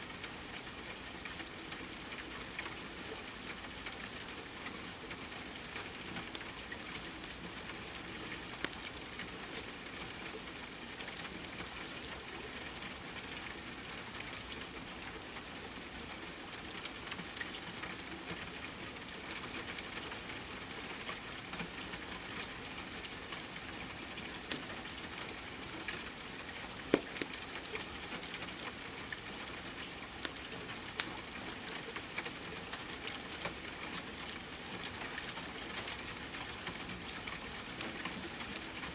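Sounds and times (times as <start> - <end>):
steady rain: 0.0 - 38.9
wood fire crackling and popping: 24.4 - 24.8, 26.8 - 28.4.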